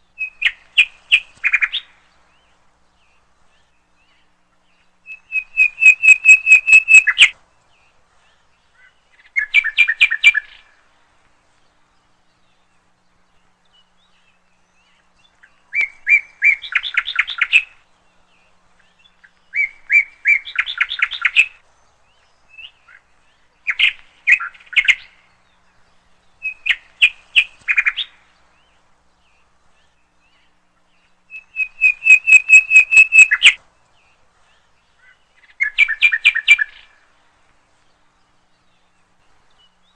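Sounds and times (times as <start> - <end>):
bird trilling chirps: 5.0 - 7.4, 31.2 - 33.6.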